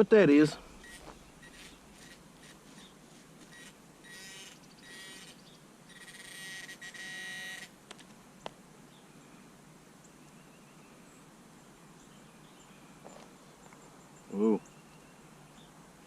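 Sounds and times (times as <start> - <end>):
metal detector beeping: 0.8 - 2.6, 3.5 - 5.3.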